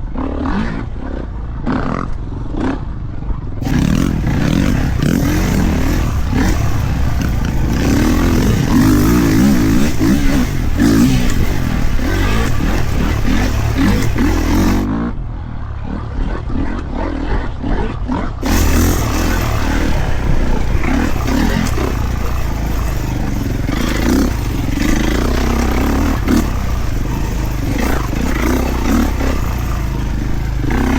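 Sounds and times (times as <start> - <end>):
dirt bike engine revving: 3.6 - 15.0, 18.4 - 30.9.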